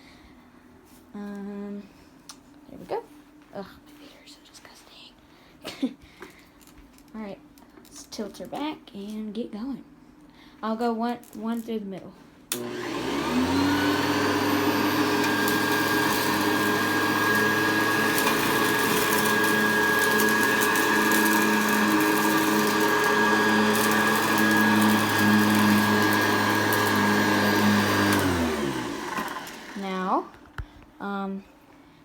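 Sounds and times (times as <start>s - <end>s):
vacuum motor winding down: 12.5s - 30.5s
vacuum cleaner running: 12.5s - 31.2s.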